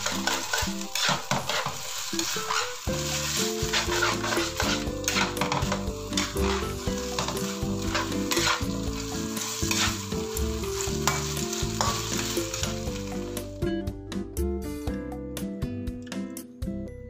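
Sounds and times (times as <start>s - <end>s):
utensil scraping against pan: 0.0s - 13.1s
chicken sizzling in frying pan: 0.0s - 13.6s.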